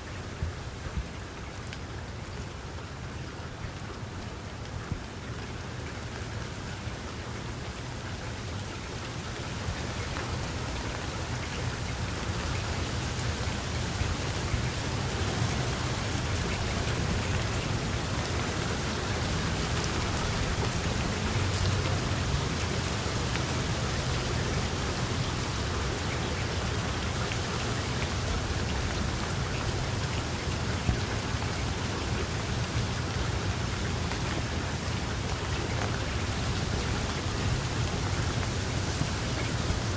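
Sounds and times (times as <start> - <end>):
rain hiss: 0.0 - 39.9
raindrop ticks: 3.6 - 39.9.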